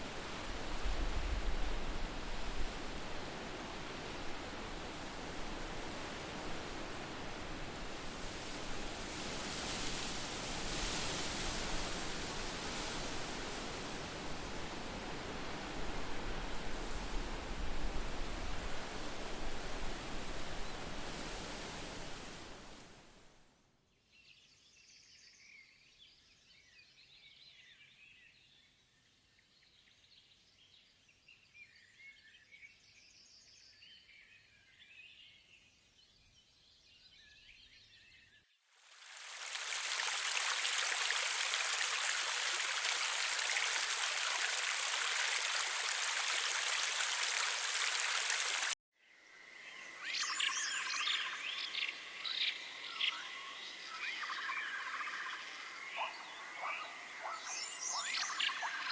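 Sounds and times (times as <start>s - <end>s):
rushing water: 0.0s - 23.0s, 38.8s - 48.8s.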